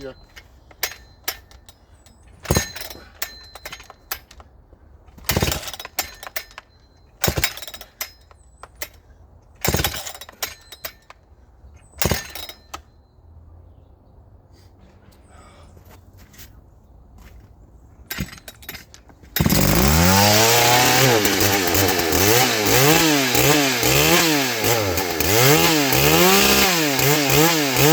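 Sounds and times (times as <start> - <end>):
chainsaw starter cord pulls: 18.1 - 27.9.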